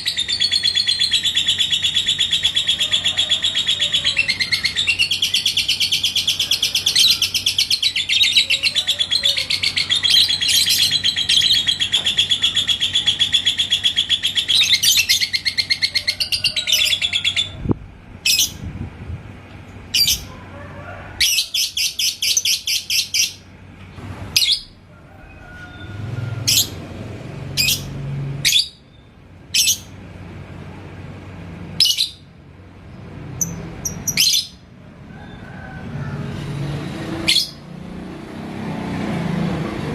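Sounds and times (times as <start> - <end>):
lovebird chattering: 0.0 - 17.6, 19.9 - 20.3, 27.6 - 28.8, 33.4 - 34.6.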